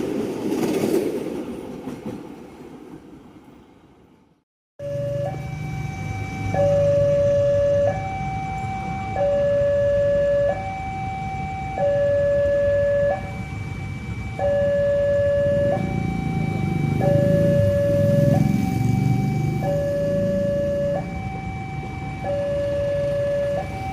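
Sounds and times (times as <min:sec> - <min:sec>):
two-tone electronic alarm: 0:04.8 - 0:23.9.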